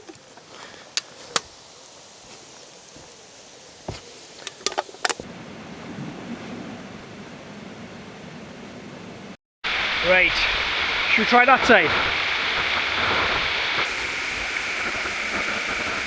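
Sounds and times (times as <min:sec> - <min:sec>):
sharp clicks and knocks: 0:00.0 - 0:05.2.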